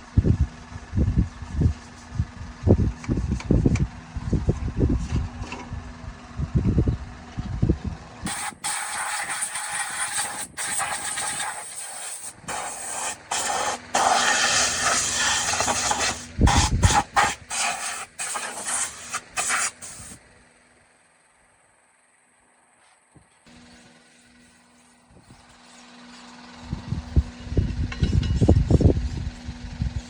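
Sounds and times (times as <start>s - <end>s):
low rumble: 0.0s - 8.2s, 26.6s - 30.0s
hissing spray bursts: 8.3s - 20.2s.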